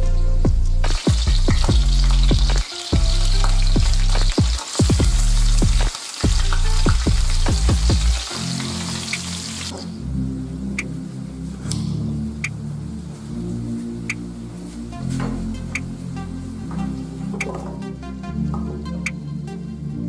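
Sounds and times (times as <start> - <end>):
music with heavy bass: 0.0 - 20.0
food sizzling in a pan: 0.9 - 9.9.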